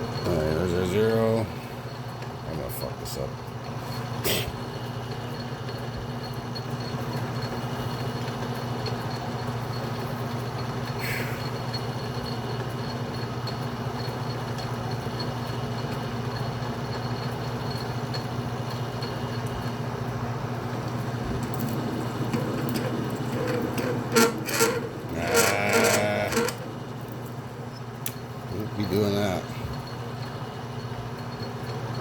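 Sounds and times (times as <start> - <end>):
lathe motor hum: 7.2 - 32.0
pitched squeal: 21.6 - 27.9
tool scraping metal: 21.7 - 26.8.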